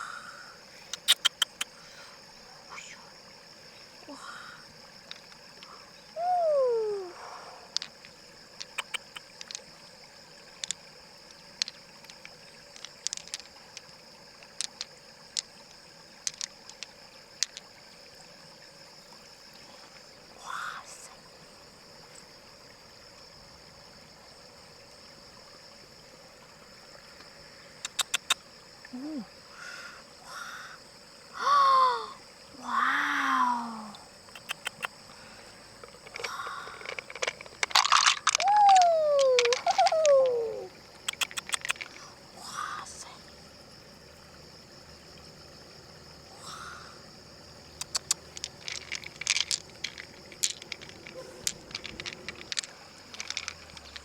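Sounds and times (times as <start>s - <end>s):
sharp clicks and taps: 0.9s - 1.7s, 8.6s - 9.6s, 34.3s - 35.0s, 41.1s - 41.9s, 47.8s - 49.6s.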